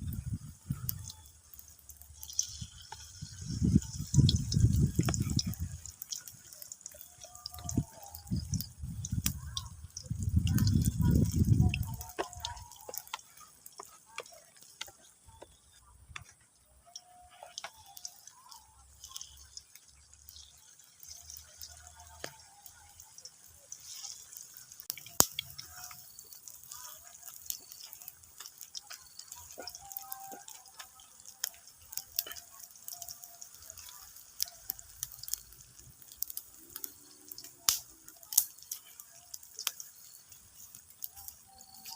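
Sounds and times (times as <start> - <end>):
water dripping: 0.0 - 41.9.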